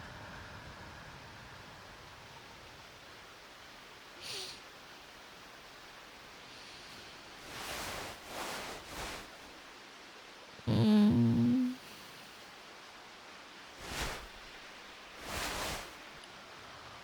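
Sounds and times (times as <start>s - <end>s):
rain hiss: 0.0s - 17.0s
soft breathy swishes: 6.5s - 9.7s, 13.8s - 16.2s
woman humming: 10.6s - 12.2s.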